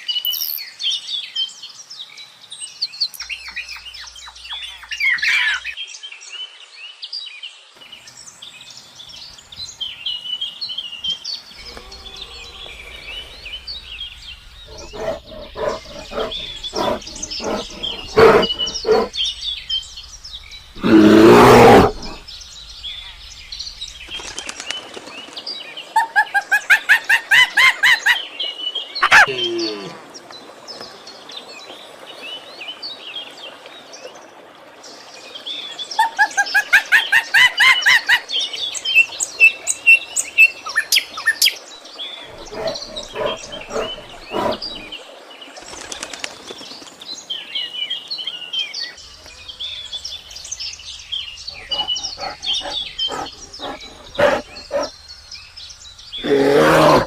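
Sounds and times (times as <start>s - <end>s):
birds calling and chirping: 0.0s - 1.4s, 7.9s - 30.9s, 35.9s - 57.0s.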